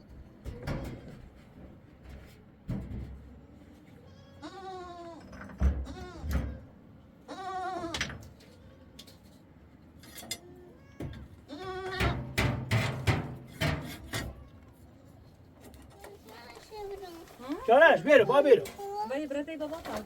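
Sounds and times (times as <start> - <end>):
goats or sheep bleating: 11.5 - 12.4.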